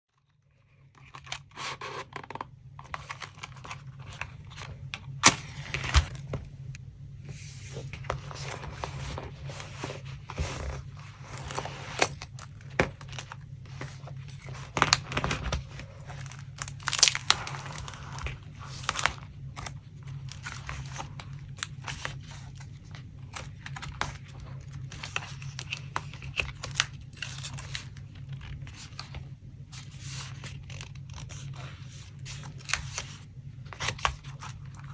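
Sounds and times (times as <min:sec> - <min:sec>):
steady low hum: 0:02.8 - 0:25.0
paper rustling and crinkling: 0:07.3 - 0:12.1, 0:15.2 - 0:34.9.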